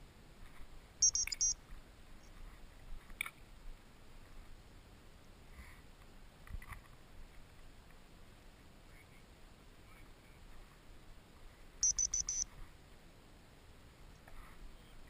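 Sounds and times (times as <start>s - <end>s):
faint clicks and rustles: 0.3s - 0.9s, 1.5s - 8.7s, 14.0s - 15.0s
high electronic beeps: 1.0s - 1.6s, 11.8s - 12.5s.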